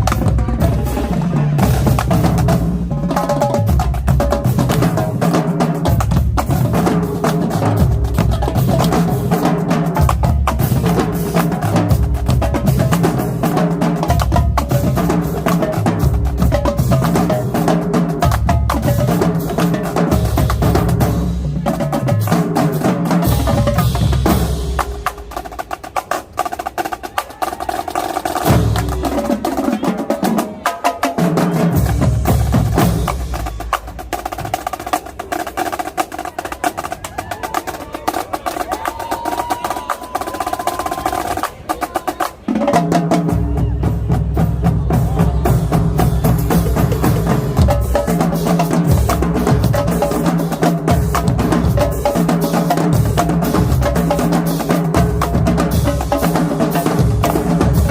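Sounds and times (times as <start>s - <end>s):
bass drums: 0.0s - 25.8s, 28.4s - 29.6s, 31.6s - 34.8s, 43.1s - 57.9s
rapid snare drum strokes: 0.0s - 57.9s.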